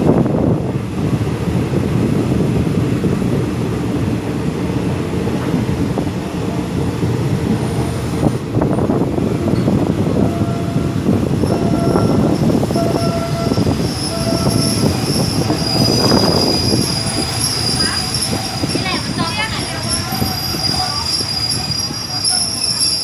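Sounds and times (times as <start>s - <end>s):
train rumbling on rails: 0.0s - 23.0s
train wheels squealing: 10.6s - 23.0s.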